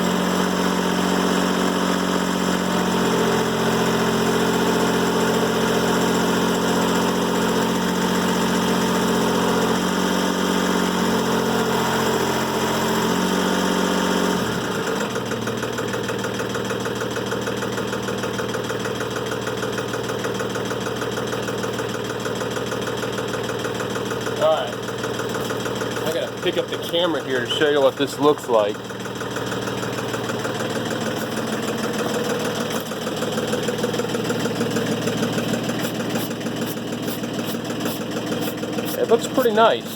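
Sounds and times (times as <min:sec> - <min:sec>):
sawmill engine running: 0:00.0 - 0:39.9
saw blade cutting log: 0:31.0 - 0:39.8.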